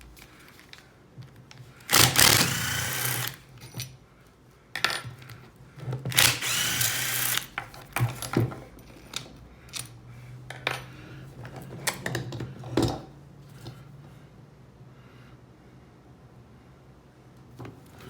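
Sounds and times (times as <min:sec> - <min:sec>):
power drill whining: 0:01.9 - 0:03.4, 0:06.1 - 0:07.6
hard parts knocking and clinking: 0:01.9 - 0:04.0, 0:04.8 - 0:13.1.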